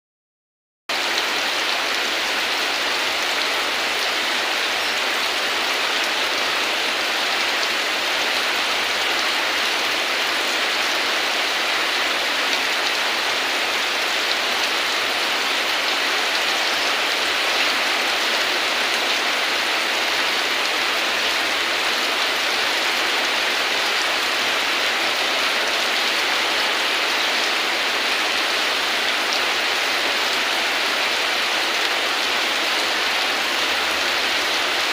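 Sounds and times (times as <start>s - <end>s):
steady rain falling: 0.9s - 34.9s.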